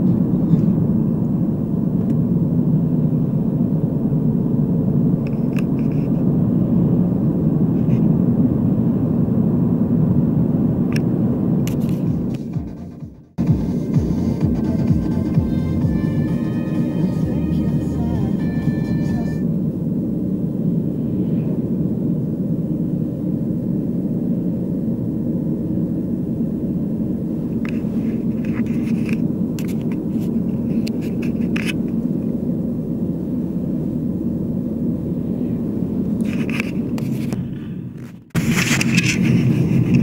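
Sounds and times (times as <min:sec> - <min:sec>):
road rumble inside moving vehicle: 0:00.0 - 0:40.0
brief rattles or scrapes: 0:38.0 - 0:40.0.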